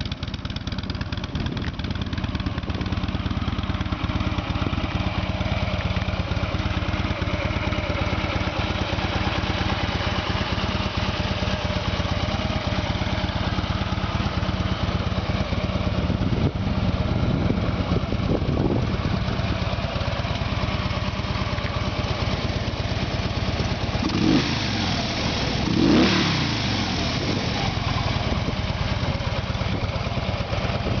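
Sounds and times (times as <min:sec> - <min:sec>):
motorcycle engine idling and revving: 0:00.0 - 0:31.0.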